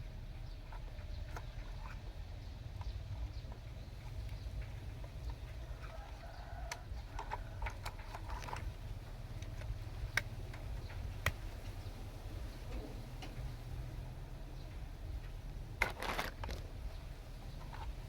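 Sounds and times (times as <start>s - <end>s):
low steady rumble: 0.0s - 18.0s
sharp clicks and knocks: 2.7s - 12.0s.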